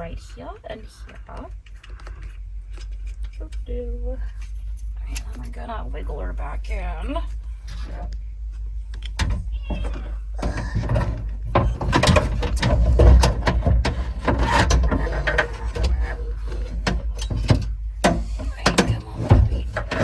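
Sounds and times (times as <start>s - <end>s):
metal clattering and scraping: 4.2s - 20.0s
clicks and knocks on sheet metal: 9.2s - 20.0s.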